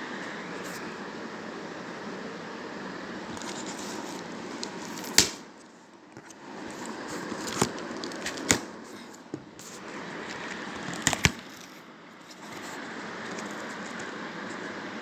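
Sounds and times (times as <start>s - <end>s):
cardboard box rustling: 6.7s - 11.5s.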